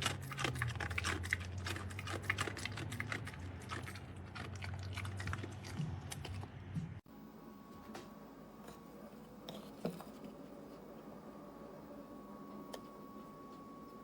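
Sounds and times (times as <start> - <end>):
dogs chewing and crunching food: 0.0 - 7.0
low steady hum: 0.0 - 14.0.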